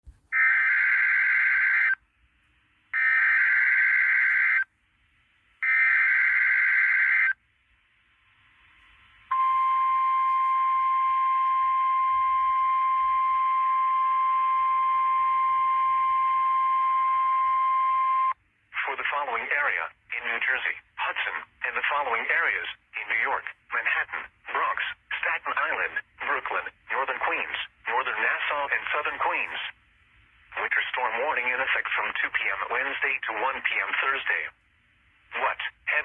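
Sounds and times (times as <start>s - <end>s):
long steady attention tone: 0.4s - 36.0s
digital header tones: 9.3s - 18.4s.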